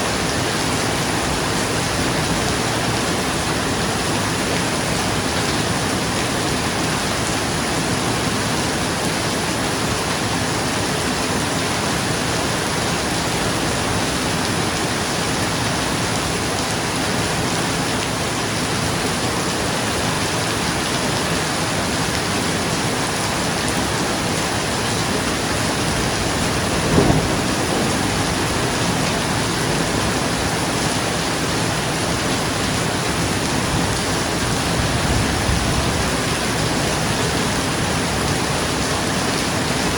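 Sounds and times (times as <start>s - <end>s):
heavy rain on a roof: 0.0s - 39.9s
thunder crack: 25.6s - 30.5s.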